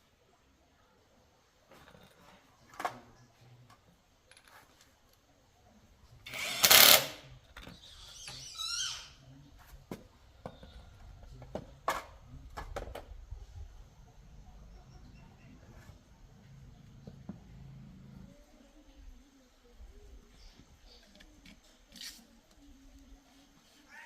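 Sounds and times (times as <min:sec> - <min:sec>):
wavering squeak: 0:07.8 - 0:09.2.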